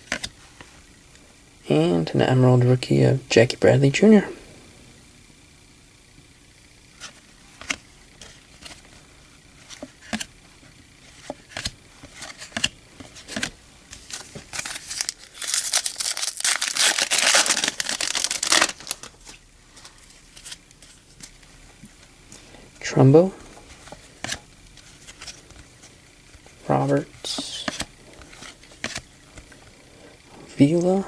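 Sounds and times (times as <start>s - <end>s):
cards clicking and flicking: 0.0s - 0.7s, 6.9s - 9.0s, 9.6s - 22.4s, 23.4s - 29.8s
foil wrapper tearing and crinkling: 11.4s - 21.4s.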